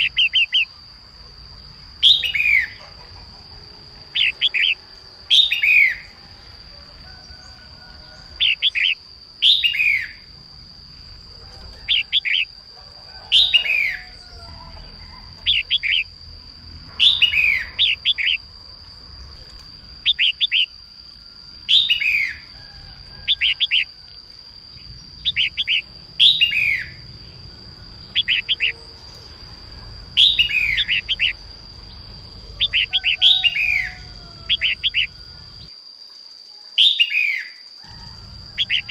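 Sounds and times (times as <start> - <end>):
bird calling: 0.0 - 0.8, 2.0 - 6.3, 7.1 - 10.3, 11.3 - 16.2, 16.9 - 18.5, 19.8 - 20.8, 21.6 - 24.0, 25.0 - 35.7, 36.8 - 38.9.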